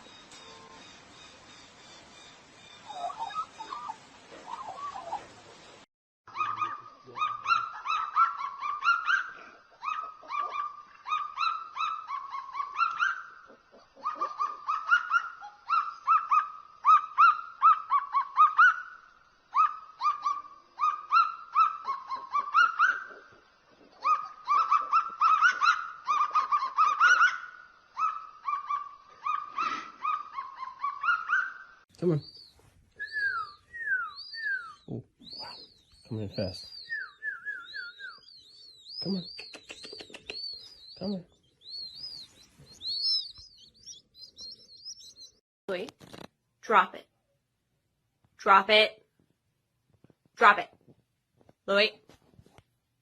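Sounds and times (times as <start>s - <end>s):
bird calling in rapid bursts: 0.9s - 9.2s, 24.0s - 45.4s.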